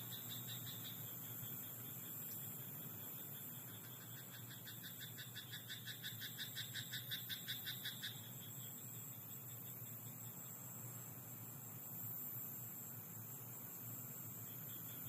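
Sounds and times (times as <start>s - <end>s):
faint background frog chorus: 0.0s - 15.0s.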